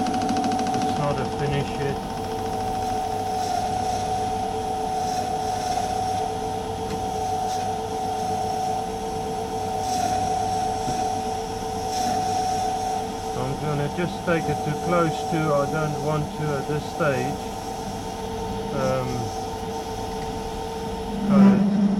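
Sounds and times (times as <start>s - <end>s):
lathe cutting metal whine: 0.0s - 21.9s
man talking: 1.0s - 2.0s, 13.4s - 17.4s, 18.7s - 19.3s, 21.3s - 21.7s
faint hissy bursts: 2.7s - 20.9s.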